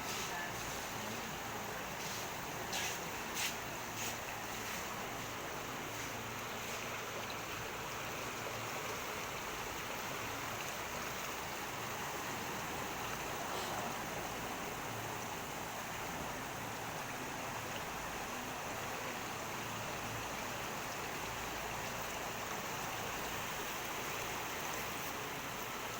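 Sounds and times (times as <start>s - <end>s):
floodwater rushing: 0.0s - 25.9s.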